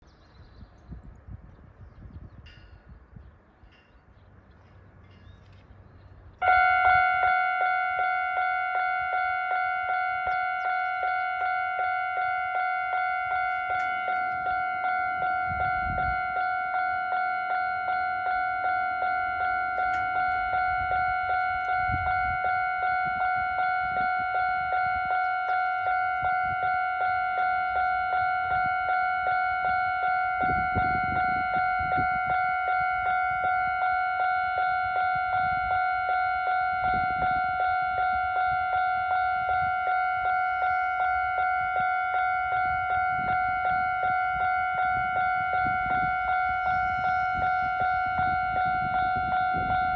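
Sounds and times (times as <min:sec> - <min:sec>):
level crossing bell clanging: 0:10.8 - 0:24.0.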